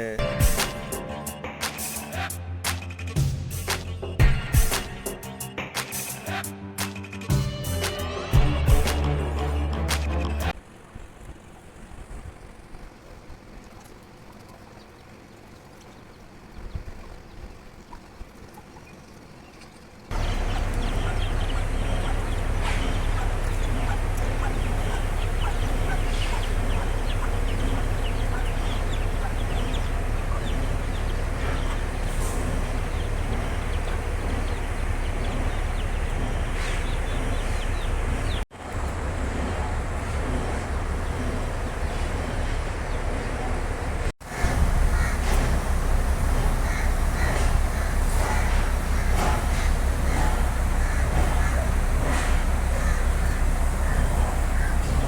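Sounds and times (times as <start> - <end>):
chickens and birds calling: 13.8 - 55.0
low rumble: 20.1 - 55.0.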